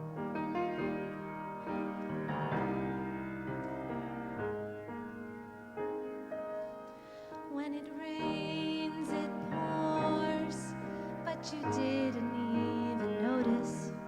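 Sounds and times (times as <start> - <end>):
piano playing slow chords: 0.0 - 14.0.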